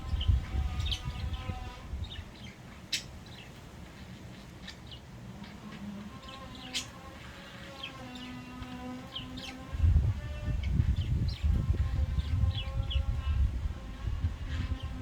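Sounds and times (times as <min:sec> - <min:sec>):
budgerigars chirping and chattering: 0:00.0 - 0:05.6, 0:06.2 - 0:07.0, 0:07.8 - 0:13.3.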